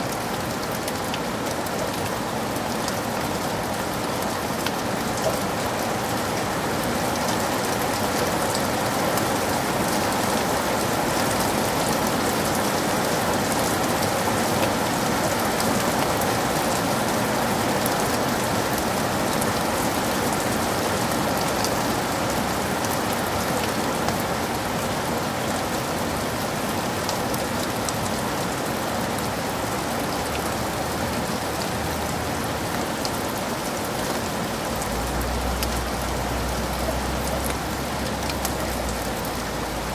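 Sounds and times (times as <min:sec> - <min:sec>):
heavy rain in forest: 0:00.0 - 0:39.9
raindrops pattering: 0:00.0 - 0:39.9.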